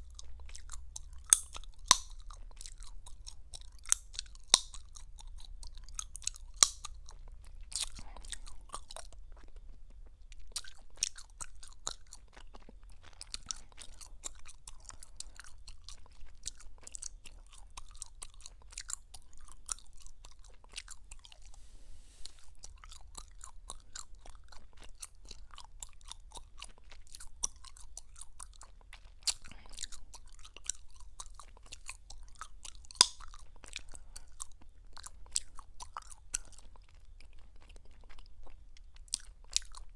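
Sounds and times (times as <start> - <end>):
gum chewing: 0.0 - 21.6, 22.2 - 39.9
gum snaps: 0.1 - 9.2, 27.2 - 36.6.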